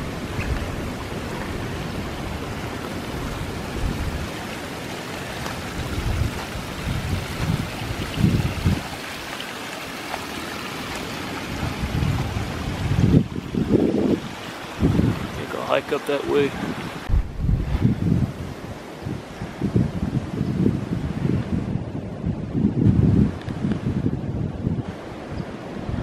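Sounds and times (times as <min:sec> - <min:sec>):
stream water rushing: 0:00.0 - 0:21.6
low bumps: 0:17.0 - 0:18.3.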